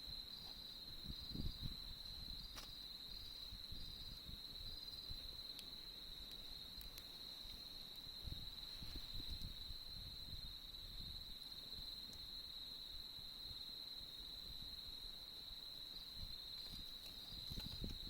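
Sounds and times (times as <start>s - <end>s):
crickets trilling: 0.0s - 18.0s
campfire crackles: 1.8s - 18.0s
low rustle: 8.2s - 9.7s.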